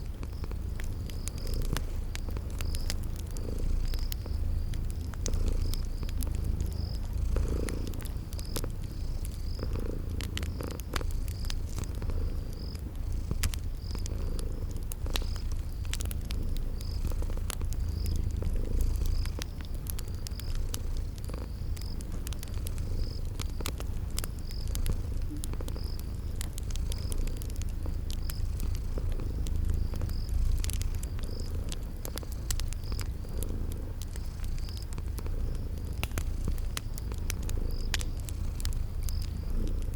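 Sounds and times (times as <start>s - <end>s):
cat purring: 0.0s - 39.9s
cricket chirping: 0.0s - 39.9s
wood fire crackling: 0.0s - 39.9s.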